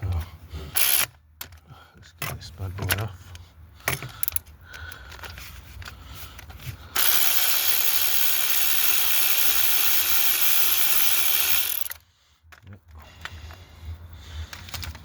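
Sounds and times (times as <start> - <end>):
handheld power tool running: 0.8 - 1.1, 7.0 - 12.0
tool-handling clicks: 3.8 - 12.6.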